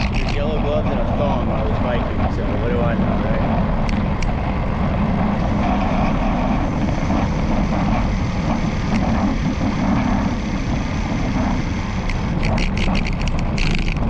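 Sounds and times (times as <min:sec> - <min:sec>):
camera mount rattling clicks: 0:00.0 - 0:00.4, 0:12.0 - 0:14.0
bicycle riding rumble: 0:00.0 - 0:14.0.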